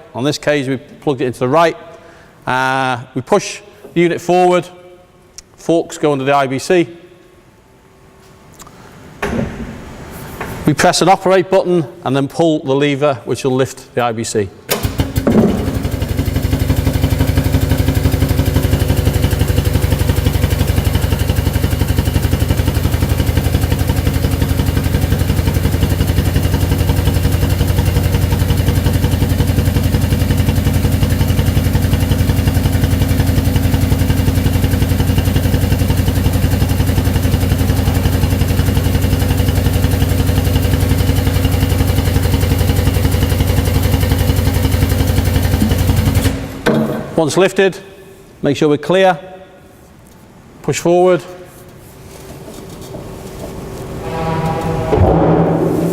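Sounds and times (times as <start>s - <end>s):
pneumatic drive pulsing hum: 45.4s - 47.2s.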